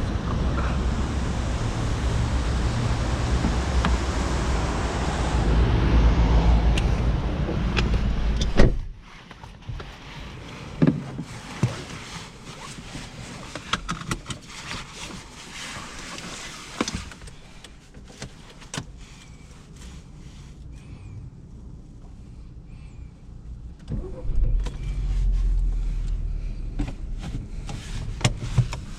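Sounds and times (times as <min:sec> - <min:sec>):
low rumble of outside noise: 0:00.0 - 0:28.9
car door thump: 0:08.4 - 0:08.9.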